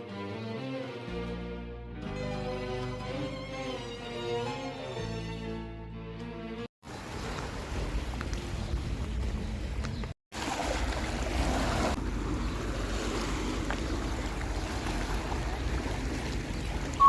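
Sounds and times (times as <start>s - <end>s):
sea waves and surf washing: 6.8s - 17.0s
wind buffeting microphone: 6.9s - 10.1s.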